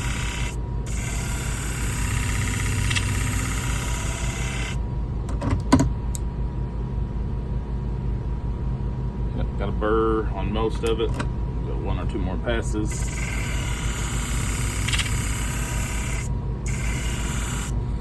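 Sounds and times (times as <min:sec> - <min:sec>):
blade clicks: 0:00.0 - 0:04.4, 0:12.9 - 0:17.7
blade grinding on wheel: 0:00.0 - 0:04.8, 0:12.9 - 0:17.8
sharpening machine motor hum: 0:00.0 - 0:04.8, 0:12.8 - 0:18.0.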